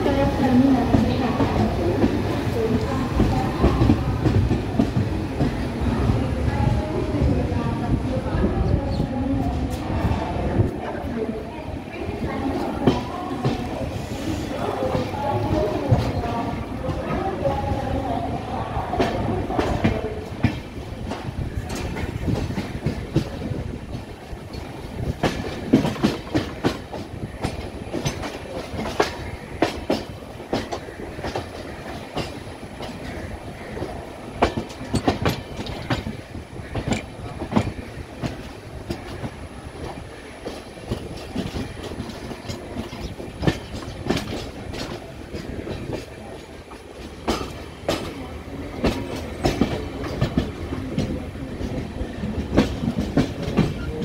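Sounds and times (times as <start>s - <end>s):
train rumble: 0.0s - 54.0s
wheels clacking over rail joints: 12.4s - 54.0s.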